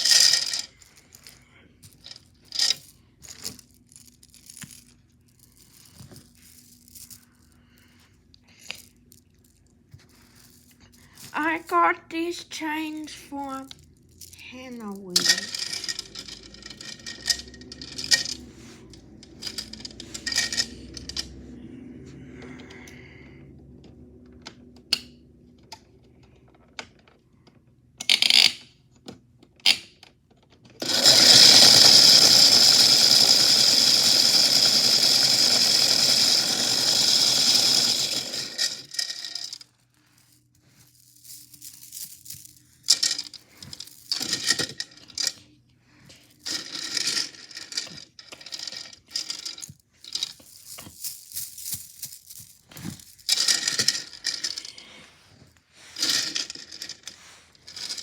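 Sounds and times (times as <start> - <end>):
toy washing machine running: 0.0 - 0.8, 15.2 - 18.4, 19.3 - 21.0, 30.8 - 39.6
chains rattling in drum: 0.0 - 1.3, 14.2 - 21.3, 30.8 - 39.6
metal chains clinking: 0.0 - 1.4, 14.1 - 21.4, 30.8 - 39.6, 46.5 - 55.0.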